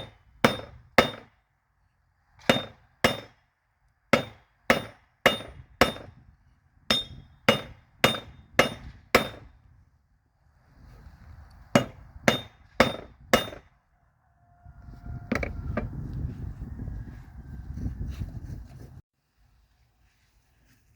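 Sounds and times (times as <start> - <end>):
hammer striking spike on anvil: 2.4 - 3.4, 4.2 - 6.1, 6.9 - 9.5, 11.8 - 13.7.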